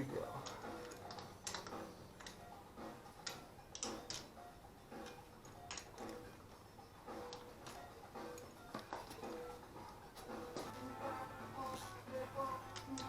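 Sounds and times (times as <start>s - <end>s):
faint background music: 0.0s - 13.0s
hand tools clicking: 0.4s - 2.4s, 3.2s - 6.3s, 7.1s - 10.7s, 12.5s - 13.0s.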